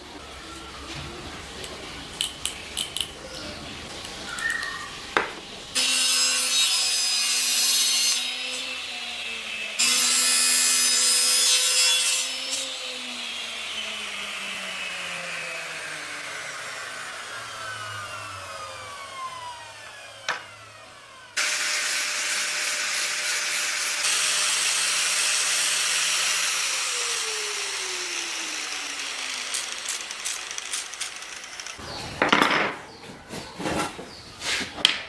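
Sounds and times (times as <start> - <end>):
power tool cutting wood: 4.1 - 31.8.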